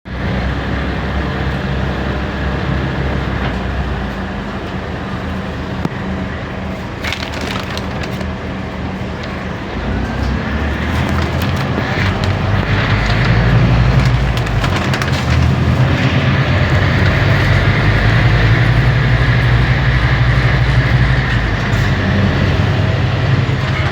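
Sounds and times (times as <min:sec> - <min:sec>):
bus engine droning: 0:00.1 - 0:23.9
sharp rattles and clicks: 0:07.0 - 0:08.4, 0:09.1 - 0:23.9.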